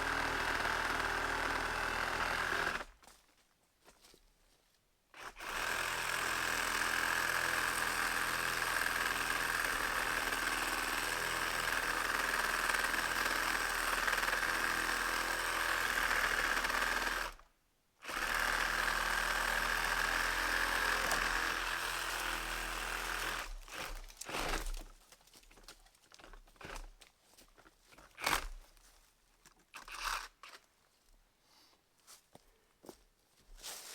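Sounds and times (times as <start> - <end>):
cordless saw cutting wood: 0.0 - 2.9, 5.2 - 17.4, 18.0 - 24.9.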